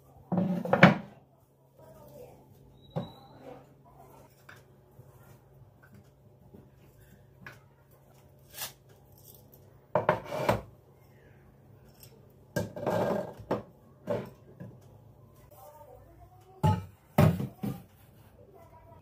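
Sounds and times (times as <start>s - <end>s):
dishes clattering: 12.5s - 14.3s.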